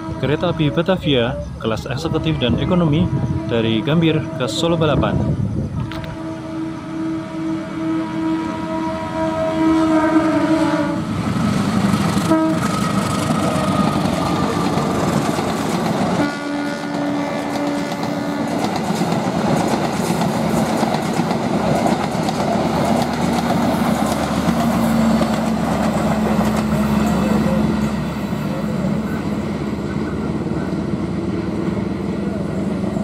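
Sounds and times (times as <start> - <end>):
locomotive horn blasts: 0.0 - 0.8, 2.1 - 4.8, 5.8 - 11.1, 12.2 - 12.9, 16.2 - 18.6
train wheels clattering on rails: 11.3 - 16.2, 16.8 - 28.2.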